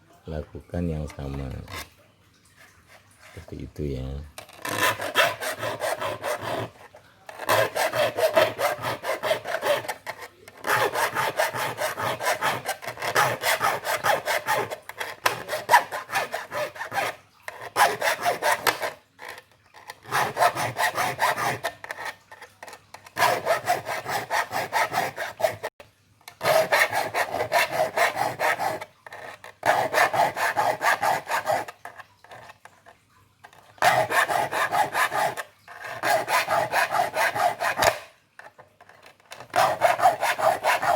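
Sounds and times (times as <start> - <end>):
file rasping on saw teeth: 4.6 - 25.7, 26.4 - 32.6, 33.8 - 38.1, 39.0 - 40.9.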